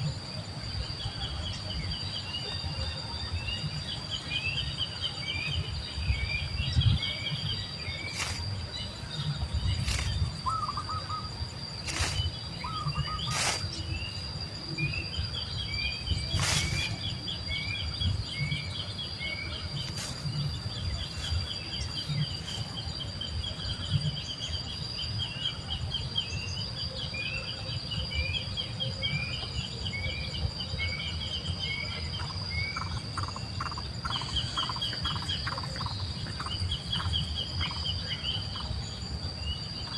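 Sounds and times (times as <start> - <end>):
high-pitched insect drone: 0.0 - 39.9
bird chirps: 3.5 - 22.9.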